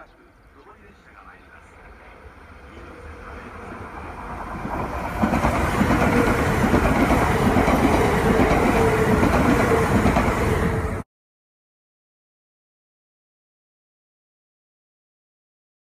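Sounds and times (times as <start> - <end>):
train rushing past: 0.6 - 11.0
wheels clickety-clack: 4.4 - 10.5.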